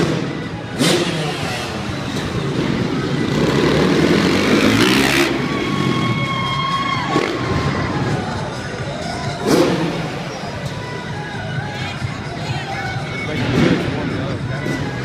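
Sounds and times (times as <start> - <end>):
dirt bike engine revving: 0.0 - 6.3, 9.2 - 11.1.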